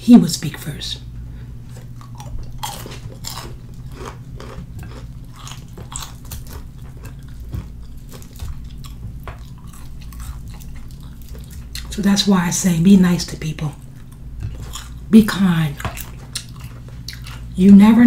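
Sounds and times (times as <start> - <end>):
chewing and wet mouth clicks: 1.8 - 12.0, 15.8 - 17.5
crunching of crispy breading: 1.8 - 12.0.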